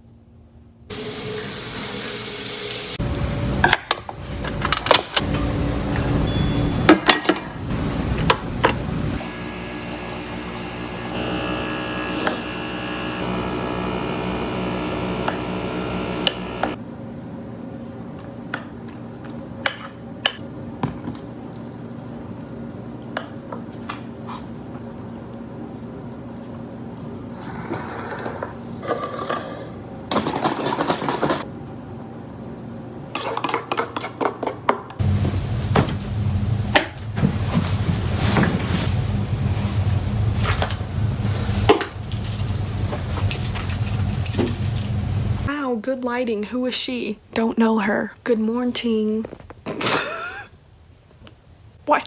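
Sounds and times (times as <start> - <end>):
dishes and utensils clinking: 4.7 - 7.6.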